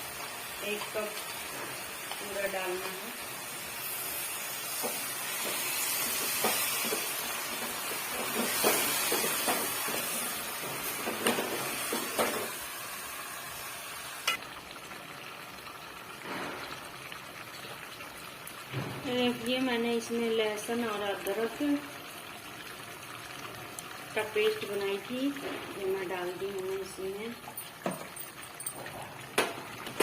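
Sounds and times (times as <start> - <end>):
chicken sizzling in a pan: 0.0 - 17.4.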